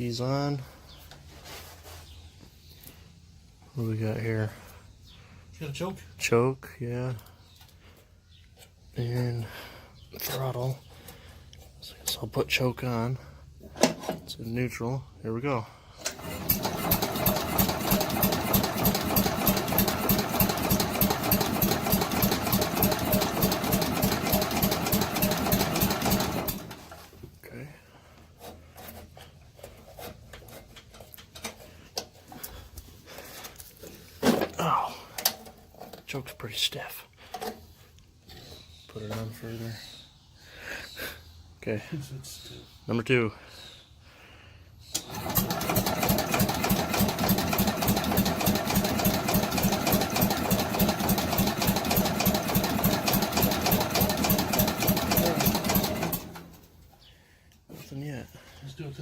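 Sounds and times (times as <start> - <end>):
engine cranking by electric starter: 16.0 - 27.2, 44.9 - 56.8.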